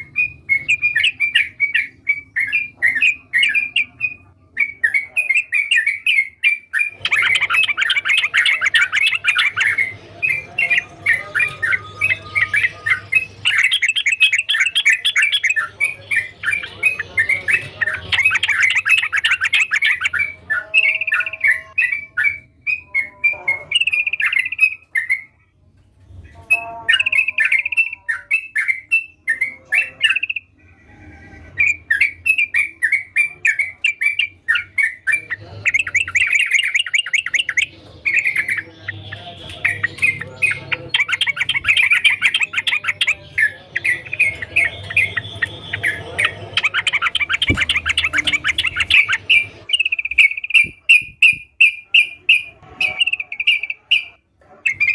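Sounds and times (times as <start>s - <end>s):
bird chattering song: 0.0s - 25.5s, 26.3s - 30.6s, 31.5s - 54.9s
bird whistled phrases: 39.5s - 54.9s.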